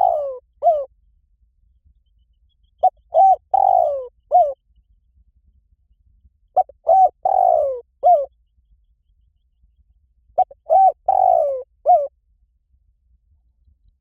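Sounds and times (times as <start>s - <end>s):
dove cooing: 0.0s - 0.9s, 2.8s - 4.6s, 6.6s - 8.3s, 10.4s - 12.1s.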